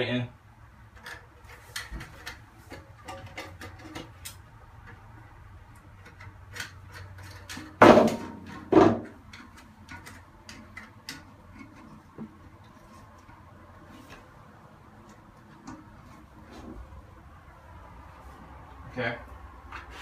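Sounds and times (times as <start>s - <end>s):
loud knocks: 7.8s - 9.1s.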